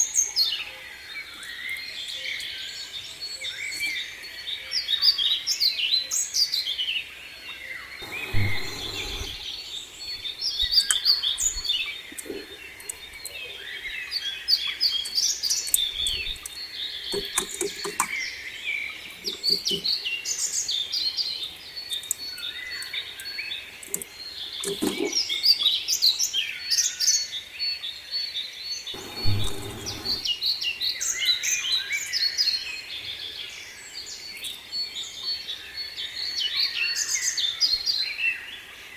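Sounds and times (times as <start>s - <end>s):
songbirds chirping and singing: 0.0s - 38.9s
low rumble: 8.0s - 9.5s, 29.0s - 30.3s.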